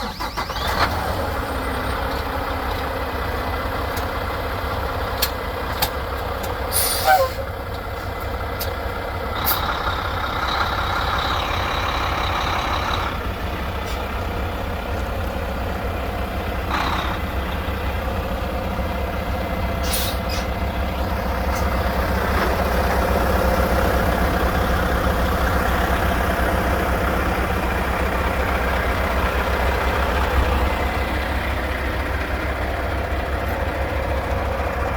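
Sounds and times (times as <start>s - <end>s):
diesel truck engine idling: 0.0s - 34.9s
air brake hisses: 6.7s - 7.5s, 19.8s - 20.5s.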